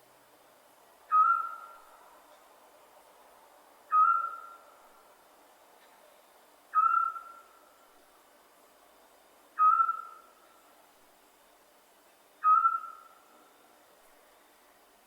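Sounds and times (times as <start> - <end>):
owl hooting: 1.1 - 1.9, 3.9 - 4.6, 6.7 - 7.6, 9.6 - 10.4, 12.4 - 13.2.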